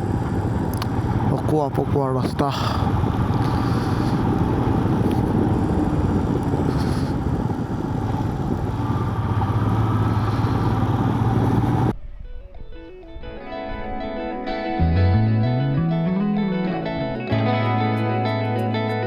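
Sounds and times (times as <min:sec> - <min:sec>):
dense rushing noise: 0:00.0 - 0:11.9
motorcycle engine running: 0:00.0 - 0:11.9.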